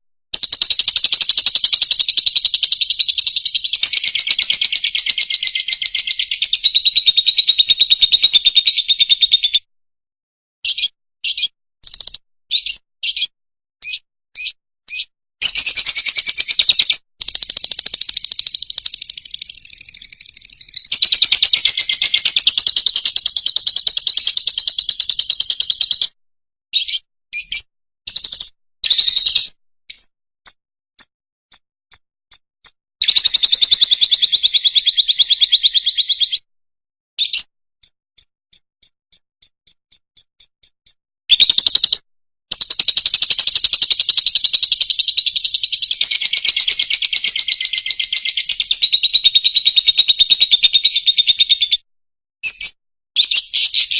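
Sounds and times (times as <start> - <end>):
lovebird chattering: 0.4 - 8.9, 10.6 - 26.0
lovebird short chirps: 10.6 - 24.5, 26.8 - 30.1.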